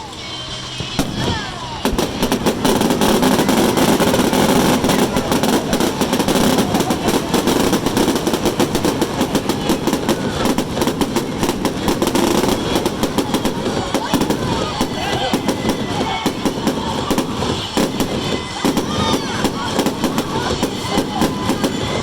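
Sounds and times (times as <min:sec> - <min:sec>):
fireworks banging and crackling: 0:00.0 - 0:22.0.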